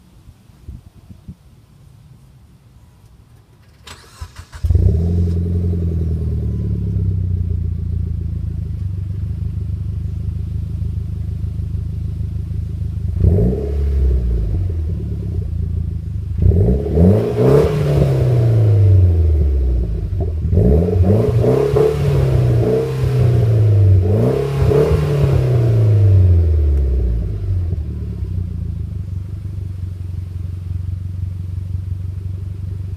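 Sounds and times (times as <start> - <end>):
engine cranking: 3.6 - 4.9
car engine idling and revving: 3.6 - 32.9.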